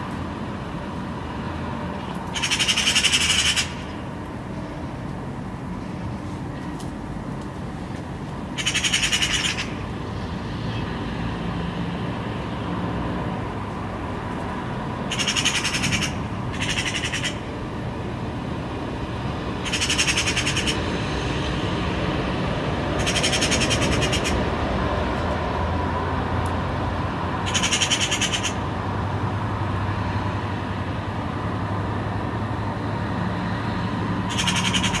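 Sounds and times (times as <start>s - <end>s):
bird chattering: 2.3s - 3.9s, 8.6s - 9.8s, 15.1s - 17.4s, 19.6s - 20.8s, 23.0s - 24.4s, 27.5s - 28.6s, 34.3s - 35.0s.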